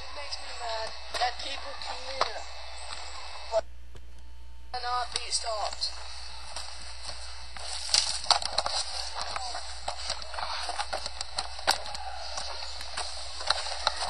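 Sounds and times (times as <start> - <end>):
footsteps through dry leaves: 5.9 - 9.8.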